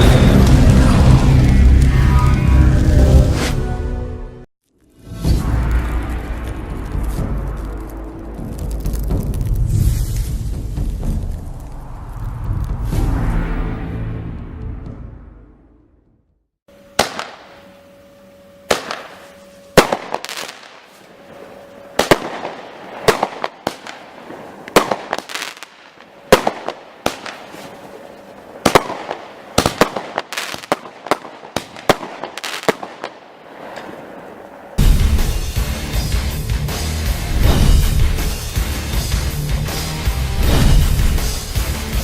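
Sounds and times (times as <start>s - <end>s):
fireworks crackling: 5.6s - 12.8s, 18.7s - 42.0s
fireworks bangs: 18.7s - 36.1s, 37.3s - 42.0s.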